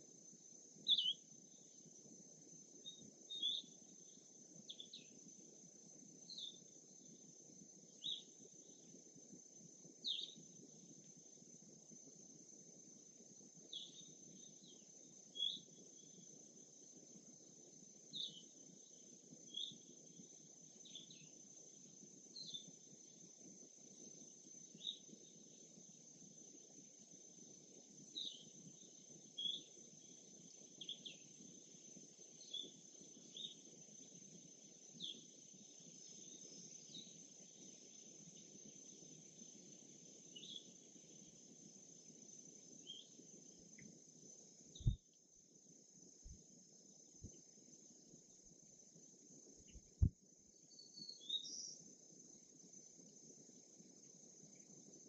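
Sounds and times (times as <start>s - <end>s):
faint high insect drone: 0.0s - 55.0s
songbird chirping: 0.9s - 1.8s, 2.8s - 5.2s, 6.3s - 7.0s, 7.9s - 8.9s, 13.7s - 16.2s, 40.3s - 40.8s, 42.8s - 43.2s, 44.7s - 45.1s, 49.6s - 51.8s.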